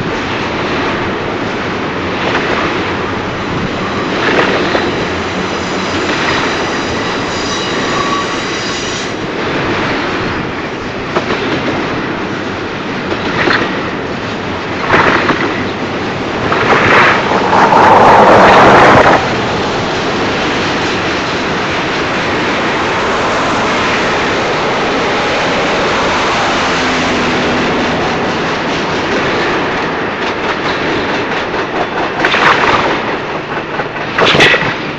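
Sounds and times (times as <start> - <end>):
freight train wheels on rail: 0.0 - 34.9
loud rush of noise: 12.2 - 34.9.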